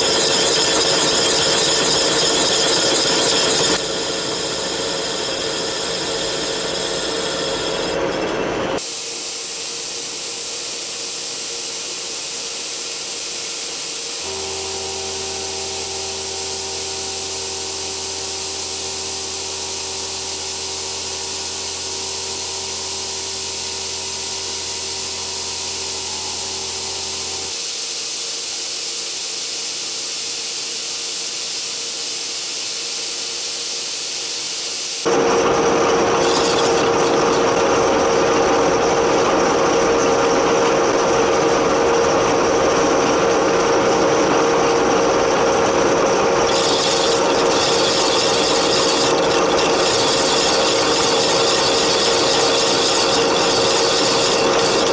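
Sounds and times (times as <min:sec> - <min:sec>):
milling machine whir: 0:00.0 - 0:09.1, 0:14.2 - 0:27.6, 0:35.0 - 0:54.9
cutter rasping in steel: 0:35.8 - 0:37.3, 0:46.5 - 0:54.9.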